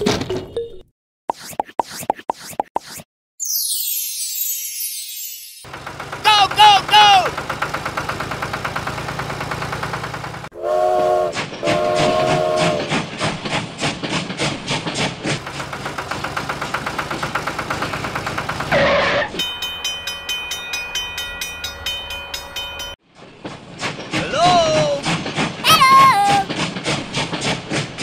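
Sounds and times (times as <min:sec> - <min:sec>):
toy train chugging clatter: 0:05.6 - 0:10.5, 0:11.4 - 0:18.8, 0:19.4 - 0:28.0
toy train whistle toot: 0:10.6 - 0:12.9.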